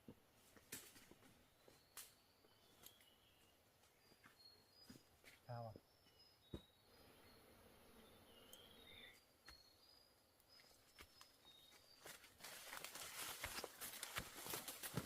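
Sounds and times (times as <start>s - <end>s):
high bird chirps: 6.0s - 12.1s
dry leaves rustling and crackling: 12.1s - 15.0s.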